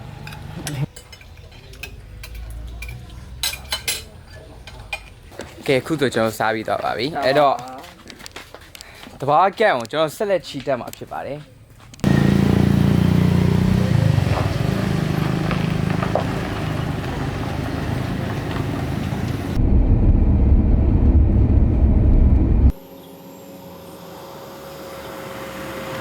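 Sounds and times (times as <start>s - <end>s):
vehicle engine and road noise: 0.0s - 0.9s, 11.9s - 22.8s
steady hum: 19.6s - 25.3s.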